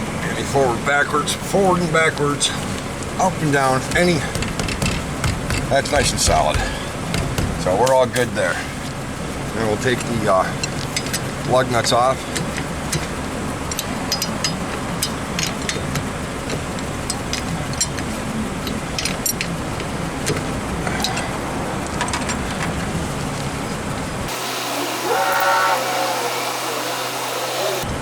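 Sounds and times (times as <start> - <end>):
steady low hum: 0.0 - 28.0
wrench clicking on lug nuts: 2.2 - 22.9.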